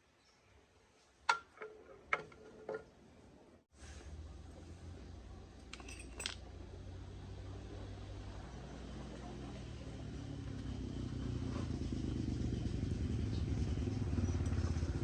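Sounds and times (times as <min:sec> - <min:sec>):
metal tools clinking: 0:05.6 - 0:06.5.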